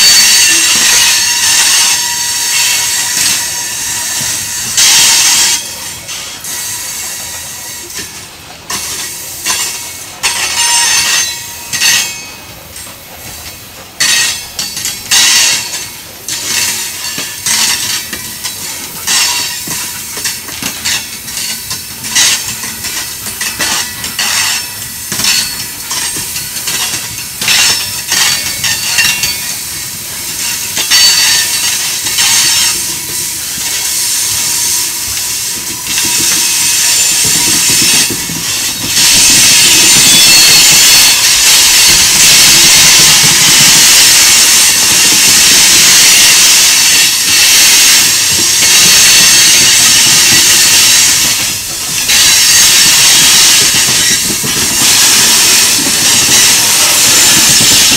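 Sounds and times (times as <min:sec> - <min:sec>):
train wheels clacking on rails: 0:00.0 - 0:57.9
high-pitched hiss: 0:13.3 - 0:57.9.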